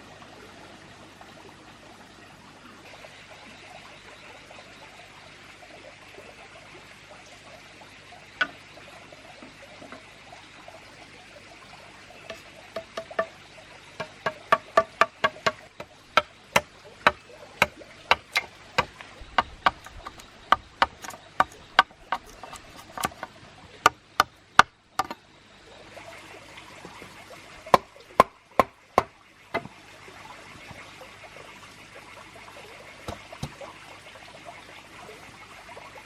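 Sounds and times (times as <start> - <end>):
sharp knocks: 12.3 - 13.4, 14.0 - 23.3, 23.9 - 25.2.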